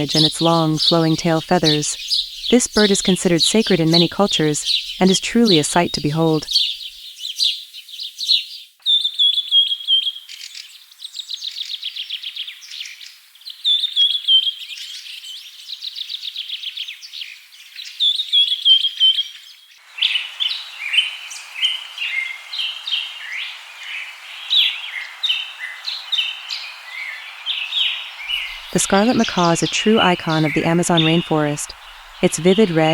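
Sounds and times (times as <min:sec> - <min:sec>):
songbirds trilling: 0:00.0 - 0:07.6, 0:19.8 - 0:32.9
chorus of bird chirps: 0:00.0 - 0:32.9
steady hiss: 0:19.8 - 0:32.9.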